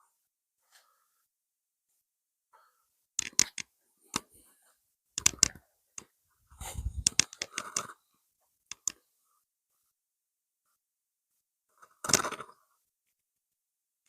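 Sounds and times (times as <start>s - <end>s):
sharp clicks and crackles: 3.2s - 4.3s, 5.2s - 5.6s, 6.8s - 7.9s, 8.7s - 9.0s.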